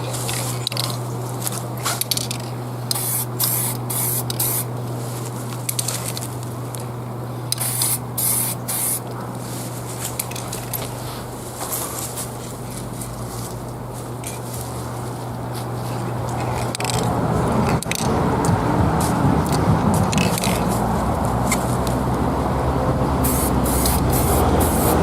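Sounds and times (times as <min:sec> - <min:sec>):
spray paint can hissing bursts: 0:02.9 - 0:04.7, 0:07.5 - 0:09.1, 0:23.2 - 0:25.0.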